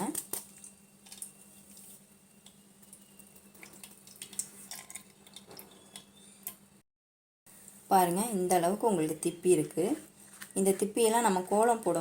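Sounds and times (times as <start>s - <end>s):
batter trickling through strainer: 0.0s - 5.9s.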